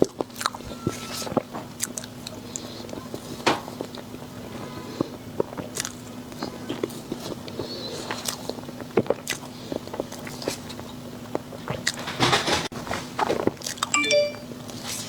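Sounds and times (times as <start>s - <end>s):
crunchy chewing: 0.0s - 12.0s
brief squeak: 0.6s - 1.4s
eating clicks and mouth noises: 1.3s - 4.3s, 5.0s - 12.0s.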